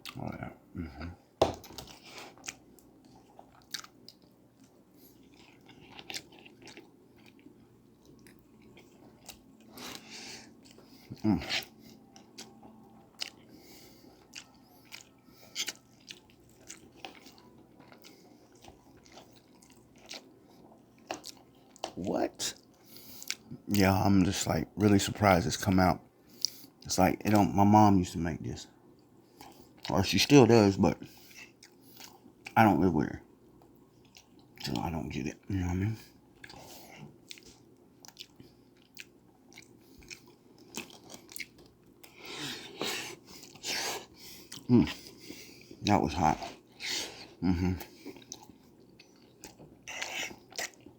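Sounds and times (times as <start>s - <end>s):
person chewing with mouth clicks: 0.0s - 0.2s, 0.8s - 22.0s, 22.6s - 23.6s, 36.4s - 45.9s, 46.5s - 50.9s.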